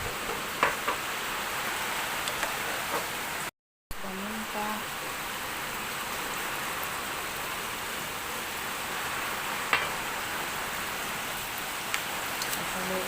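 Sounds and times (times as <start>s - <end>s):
food sizzling in a pan: 4.1s - 13.0s.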